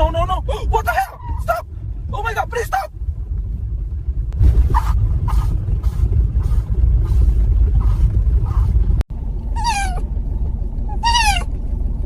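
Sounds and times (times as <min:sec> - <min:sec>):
car rumble: 0:00.0 - 0:12.0
faint short cries: 0:09.6 - 0:10.0.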